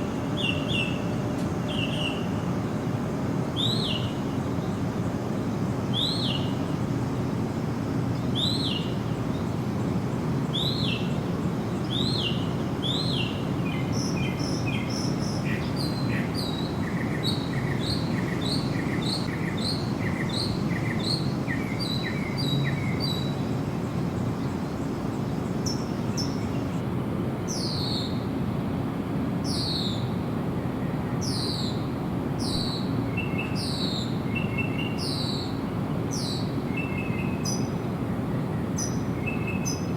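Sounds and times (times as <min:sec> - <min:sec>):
songbirds calling: 0:00.0 - 0:26.8, 0:27.4 - 0:28.3, 0:29.4 - 0:39.9.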